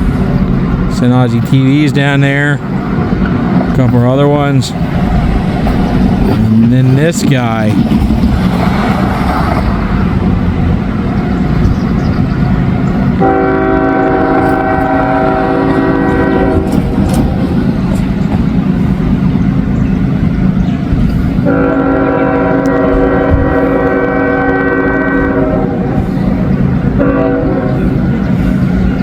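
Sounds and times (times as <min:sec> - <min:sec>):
train rumbling by: 0:00.0 - 0:29.0
locomotive horn: 0:13.2 - 0:17.4, 0:21.4 - 0:28.7.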